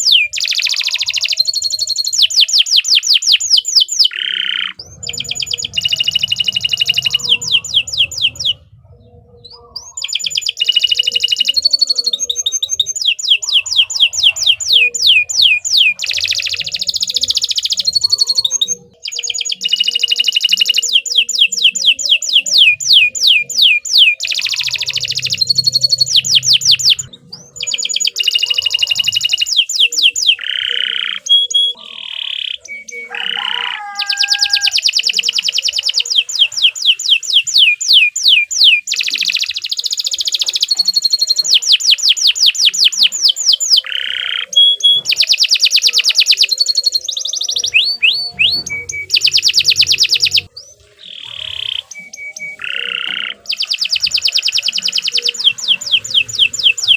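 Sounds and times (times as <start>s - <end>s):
canary singing trills: 0.0s - 56.9s.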